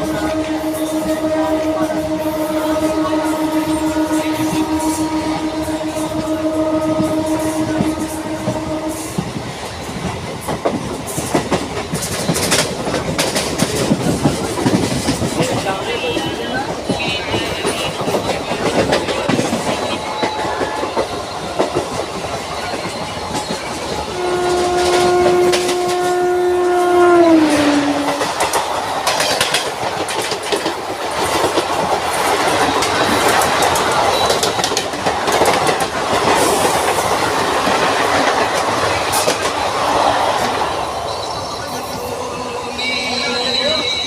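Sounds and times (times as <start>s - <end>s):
train horn: 0.0s - 9.5s, 15.1s - 29.6s, 32.4s - 40.7s
train wheels clattering over rails: 0.0s - 44.0s.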